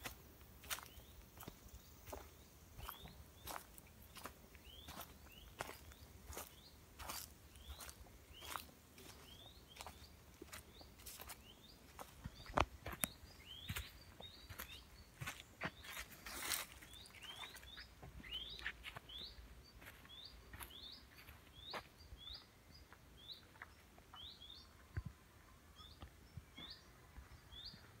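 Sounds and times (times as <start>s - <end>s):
footsteps on dirt path: 0.0s - 24.6s
songbird calling: 0.0s - 28.0s.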